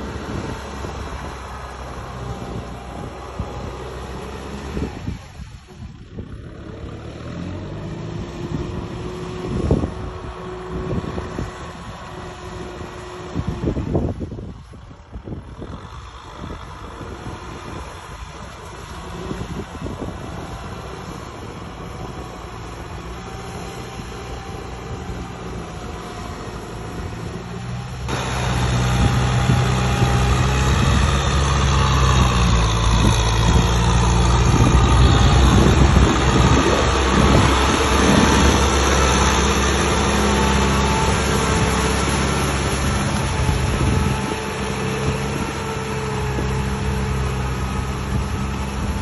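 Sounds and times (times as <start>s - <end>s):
diesel engine running: 0.0s - 49.0s.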